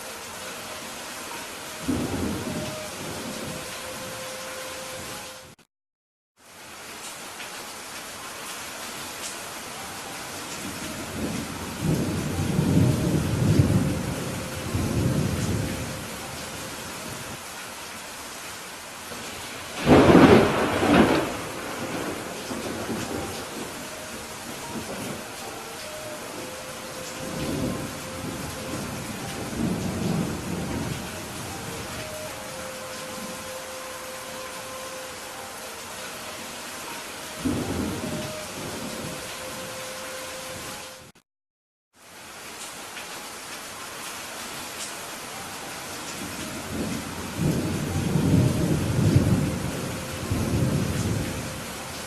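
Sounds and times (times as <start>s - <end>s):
steady rain falling: 0.0s - 5.6s, 6.4s - 41.2s, 41.9s - 52.0s
thunder rumbling: 1.8s - 4.2s, 10.7s - 17.3s, 19.8s - 33.8s, 37.4s - 39.6s, 46.4s - 51.8s.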